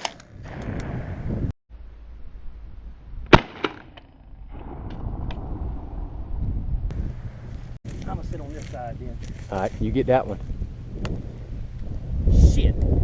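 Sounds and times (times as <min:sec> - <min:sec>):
wind rumble on microphone: 0:00.2 - 0:01.6, 0:04.2 - 0:13.0
shotgun shot: 0:03.3 - 0:04.0.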